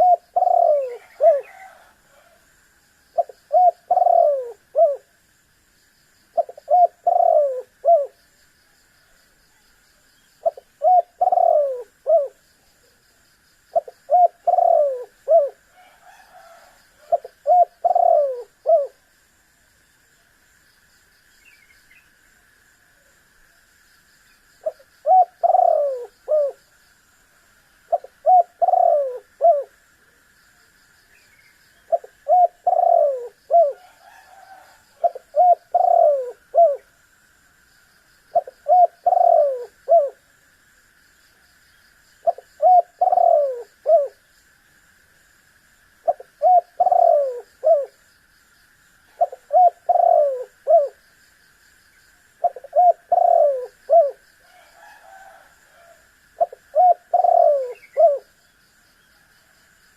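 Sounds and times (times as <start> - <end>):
dove cooing: 0.0 - 2.4, 3.2 - 5.1, 6.3 - 8.2, 10.4 - 12.4, 13.7 - 19.0, 24.6 - 26.6, 27.9 - 29.8, 31.9 - 36.9, 38.3 - 40.2, 42.2 - 44.2, 46.0 - 47.9, 49.1 - 51.0, 52.4 - 58.4.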